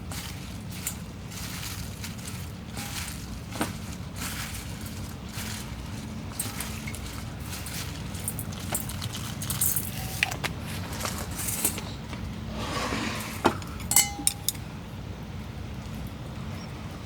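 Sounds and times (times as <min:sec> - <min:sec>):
small hard objects clinking: 0:00.0 - 0:11.8, 0:13.7 - 0:14.7.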